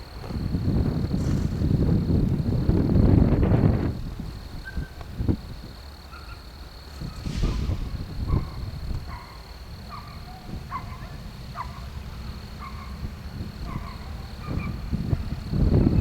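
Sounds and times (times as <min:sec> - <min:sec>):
low steady rumble: 0:06.9 - 0:16.0
thump: 0:07.2 - 0:09.2.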